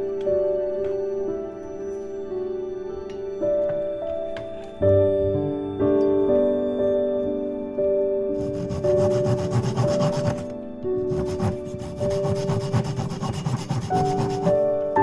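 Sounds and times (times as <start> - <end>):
soft piano music: 0.0 - 15.0
hand saw cutting wood: 8.4 - 10.5, 11.1 - 14.6.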